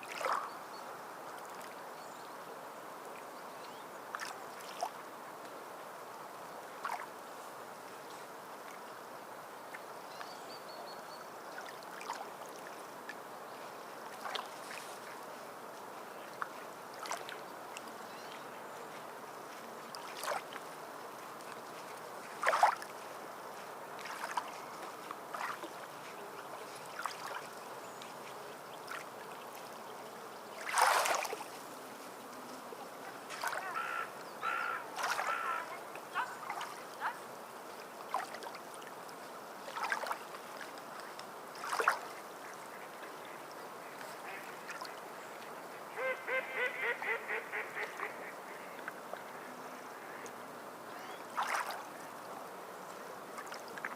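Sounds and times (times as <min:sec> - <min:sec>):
water splashing: 0:00.0 - 0:00.6, 0:11.5 - 0:12.8, 0:14.1 - 0:15.2, 0:16.3 - 0:17.8, 0:19.9 - 0:20.8, 0:21.4 - 0:29.8, 0:30.5 - 0:31.6, 0:33.0 - 0:33.8, 0:34.8 - 0:37.2, 0:37.9 - 0:39.0, 0:39.6 - 0:43.1, 0:51.0 - 0:52.1
waterfowl calling: 0:33.4 - 0:37.2, 0:45.9 - 0:48.9.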